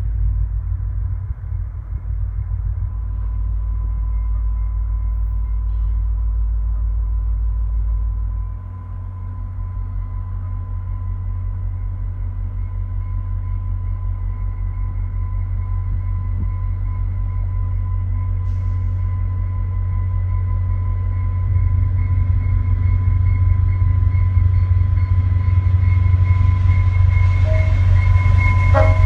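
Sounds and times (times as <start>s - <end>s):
diesel train rumbling: 0.0s - 29.0s
faint high whine: 26.7s - 29.0s.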